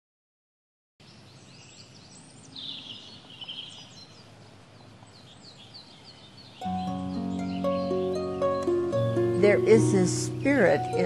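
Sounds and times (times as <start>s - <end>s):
birds chirping: 1.0s - 11.0s
outdoor background noise: 1.0s - 11.0s
bird warbling call: 1.6s - 8.2s.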